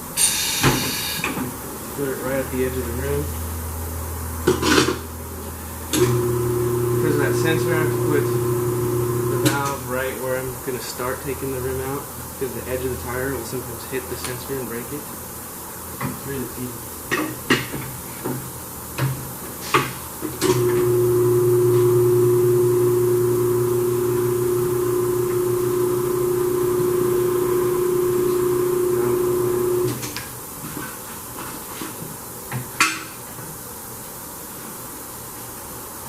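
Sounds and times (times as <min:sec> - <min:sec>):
electric motor humming: 0:06.0 - 0:09.6, 0:20.5 - 0:30.0.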